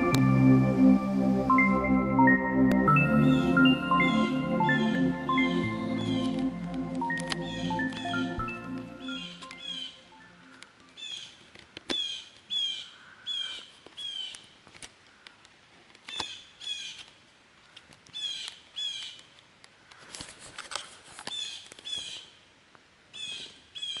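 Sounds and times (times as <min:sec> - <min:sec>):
bird calling in falling notes: 0:02.8 - 0:11.3.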